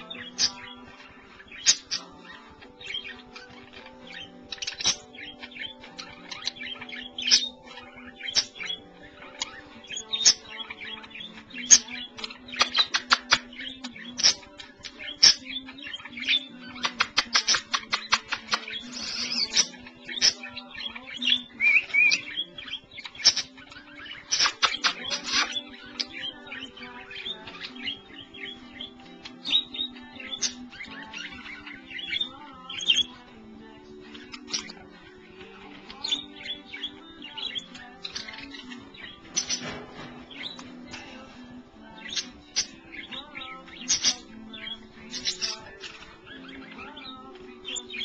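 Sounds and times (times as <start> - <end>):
budgerigars chirping and warbling: 0.0 - 48.0
rapid clicking chatter: 1.5 - 33.1.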